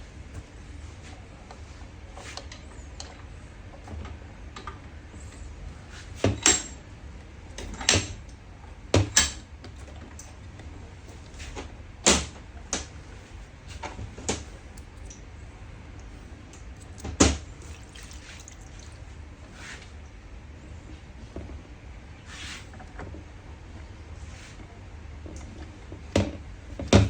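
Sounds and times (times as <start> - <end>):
low steady hum: 12.5 - 21.0.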